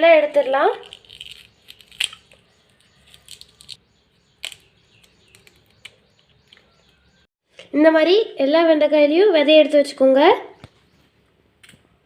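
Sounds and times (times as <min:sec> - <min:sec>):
knife scraping okra: 0:00.2 - 0:03.8.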